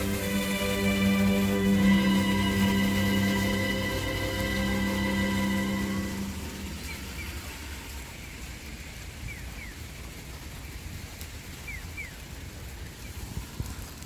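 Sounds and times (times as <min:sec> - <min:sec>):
low rumble: 0:00.0 - 0:11.2.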